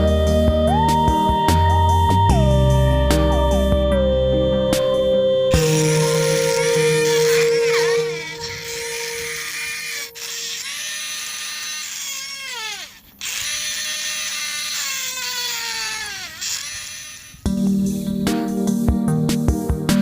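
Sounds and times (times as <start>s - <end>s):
small electric motor whining: 5.6s - 17.5s.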